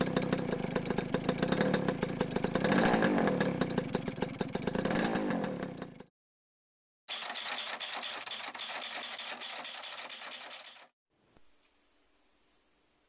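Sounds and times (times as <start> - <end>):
two-stroke motorcycle engine revving: 0.0 - 6.1, 7.1 - 10.9.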